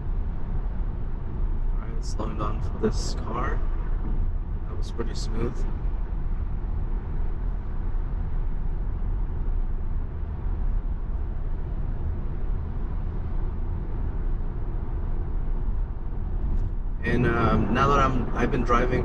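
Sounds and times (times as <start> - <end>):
road and tyre rumble: 0.0 - 19.0.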